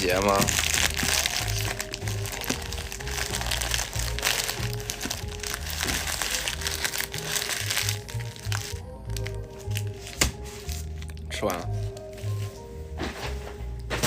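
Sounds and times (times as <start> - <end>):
paper packaging crinkling: 0.0 - 13.4.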